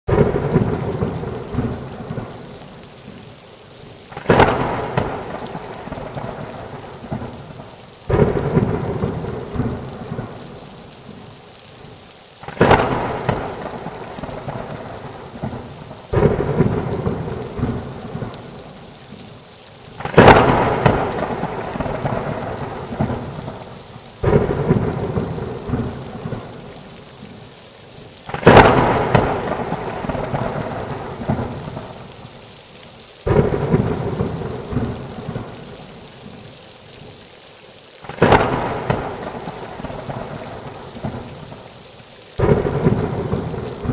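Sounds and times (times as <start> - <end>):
thunder cracking and rumbling: 0.1 - 2.5, 4.1 - 10.7, 12.4 - 18.7, 20.0 - 26.8, 28.3 - 32.0, 33.3 - 35.6, 38.1 - 41.6, 42.4 - 43.9
heavy rain falling: 0.1 - 43.9.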